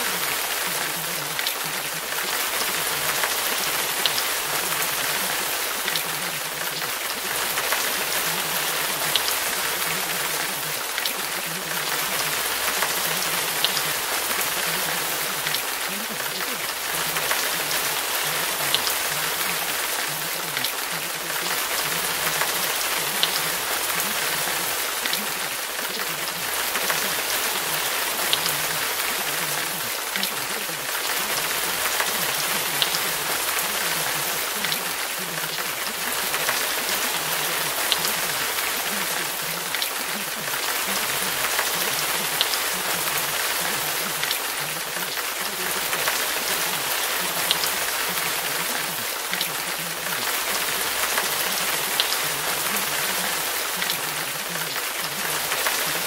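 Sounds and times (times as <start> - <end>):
faint low voice: 0.0 - 56.0
steady rain: 0.0 - 56.0.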